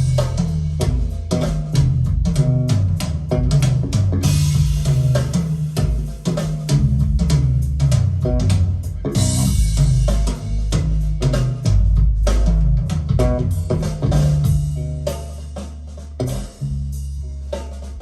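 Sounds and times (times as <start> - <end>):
drum kit: 0.0 - 18.0
heavy bass line: 0.0 - 18.0
guitar: 8.2 - 10.0.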